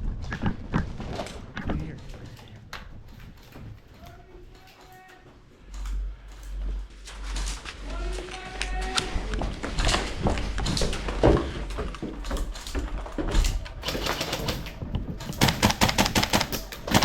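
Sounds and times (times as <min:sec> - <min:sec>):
airsoft guns firing: 0:13.8 - 0:17.0.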